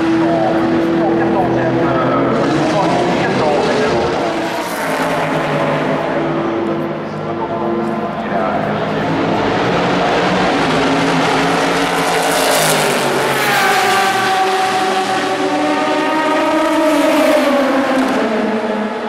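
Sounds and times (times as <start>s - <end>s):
racing car engine passing: 0.0s - 19.0s.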